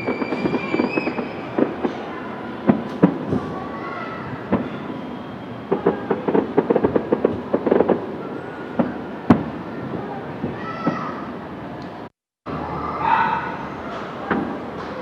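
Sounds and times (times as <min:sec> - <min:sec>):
firework bang: 0:00.0 - 0:11.3
distant fireworks crackling: 0:00.0 - 0:12.1.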